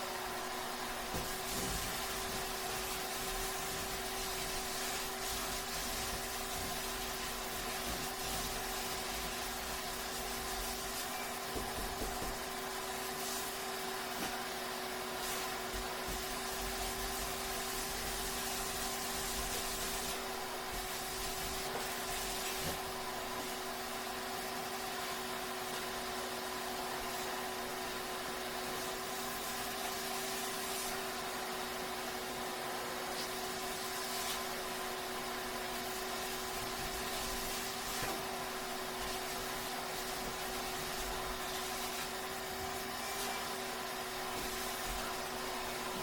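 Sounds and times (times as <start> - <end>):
hiss: 1.1 - 13.6, 15.2 - 22.8, 33.2 - 34.7.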